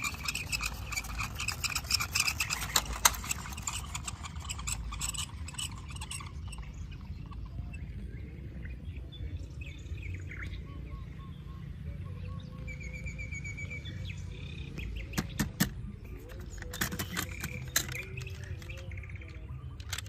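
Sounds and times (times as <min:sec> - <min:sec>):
bird chirping: 0:00.0 - 0:20.0
low steady rumble: 0:00.0 - 0:20.0
sharp clicks: 0:14.7 - 0:15.8, 0:16.4 - 0:20.0.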